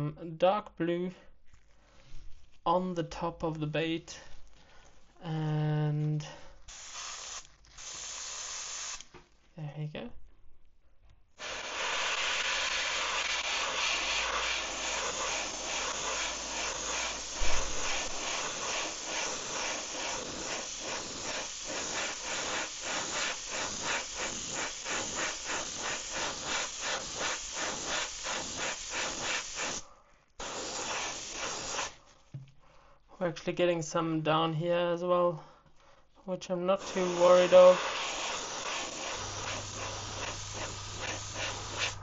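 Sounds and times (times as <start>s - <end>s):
airbrush spraying hiss: 6.7s - 9.1s, 11.4s - 32.0s, 36.7s - 42.0s.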